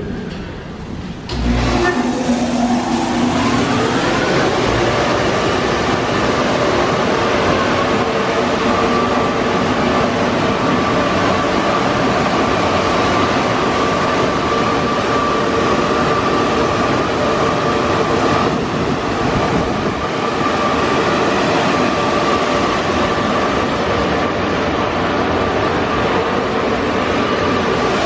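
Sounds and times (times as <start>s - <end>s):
car wash machinery rushing: 1.3s - 7.5s
steady machine whine: 1.3s - 9.7s.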